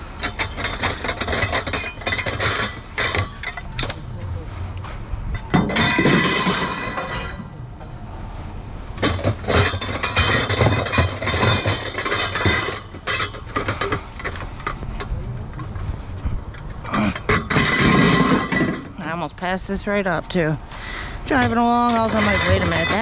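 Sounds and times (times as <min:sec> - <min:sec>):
low engine rumble: 0:00.0 - 0:23.0
scrap metal clattering: 0:05.5 - 0:07.6, 0:09.0 - 0:14.8, 0:16.9 - 0:19.0.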